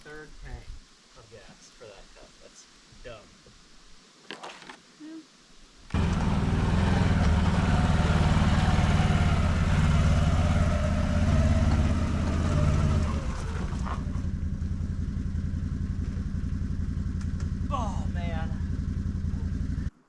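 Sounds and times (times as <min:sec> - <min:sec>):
vehicle engine running: 0:06.0 - 0:20.0.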